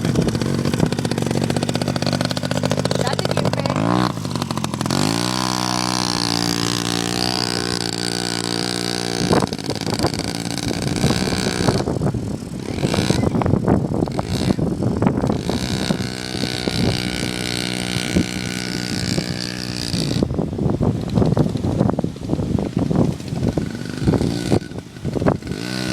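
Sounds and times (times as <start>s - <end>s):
rough crackly noise: 0.0s - 20.3s
dirt bike engine running: 0.0s - 25.9s.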